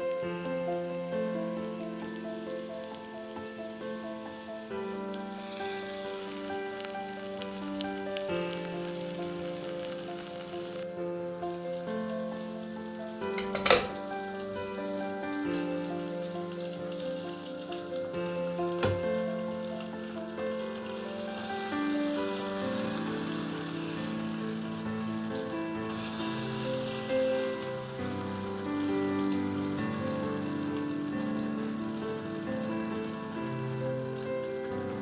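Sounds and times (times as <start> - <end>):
food sizzling in a pan: 0.0 - 35.0
sharp knock: 18.8 - 19.2.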